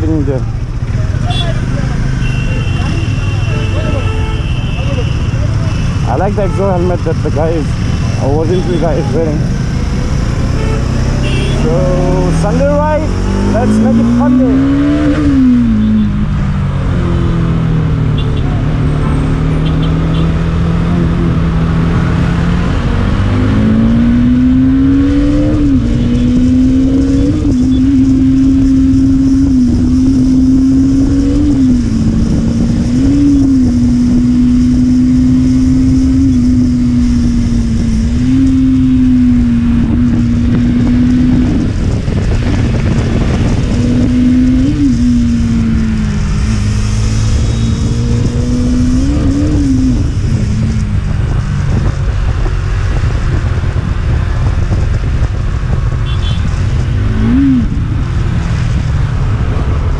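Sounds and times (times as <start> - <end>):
motorcycle engine accelerating: 5.2 - 59.9
wind noise on microphone: 19.7 - 59.9.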